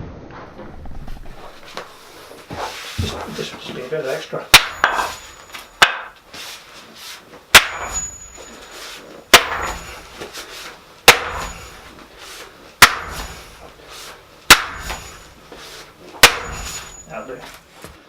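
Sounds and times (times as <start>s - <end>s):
metal tamping bar strikes: 4.5s - 6.2s, 7.5s - 8.6s, 9.3s - 10.0s, 11.0s - 11.9s, 12.8s - 13.7s, 14.4s - 15.4s, 16.2s - 17.2s.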